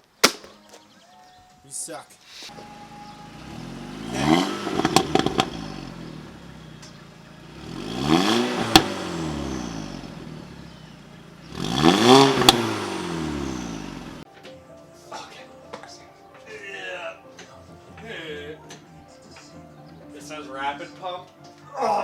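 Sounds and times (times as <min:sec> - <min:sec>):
engine revving: 0:02.5 - 0:14.2
sharp clicks: 0:04.4 - 0:05.6, 0:08.6 - 0:09.0, 0:12.0 - 0:12.9.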